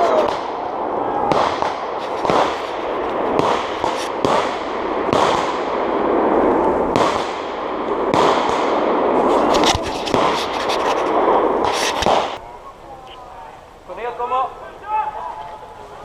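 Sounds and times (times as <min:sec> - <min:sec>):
distant bangs with rolling echo: 0:00.0 - 0:10.4, 0:11.0 - 0:12.4
steady rushing noise: 0:00.0 - 0:16.0.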